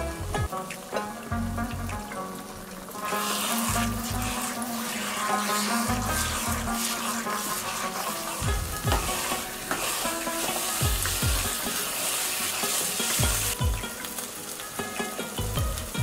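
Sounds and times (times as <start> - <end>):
carrots sizzling in a wok: 0.0 - 16.0
wooden spatula scraping a wok: 2.6 - 14.2.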